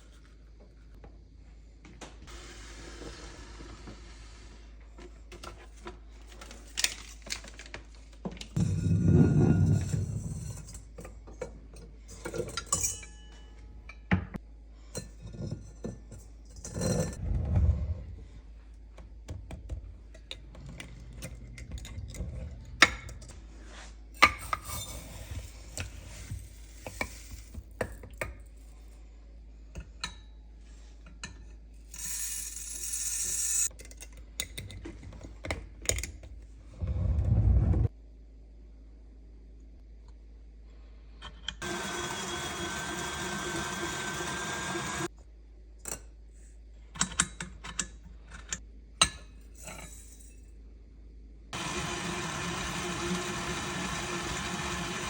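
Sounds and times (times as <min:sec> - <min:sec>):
dishes and utensils clinking: 0:08.6 - 0:14.3.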